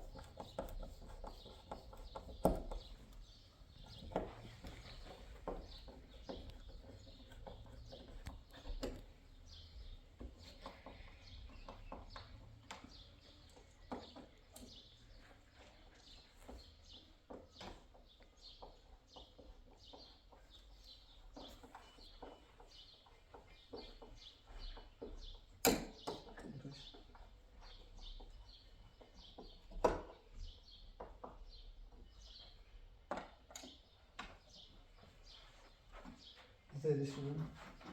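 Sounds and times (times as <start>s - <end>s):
small birds chirping: 0.0s - 37.9s
clicks and knocks of handiwork: 24.8s - 27.3s.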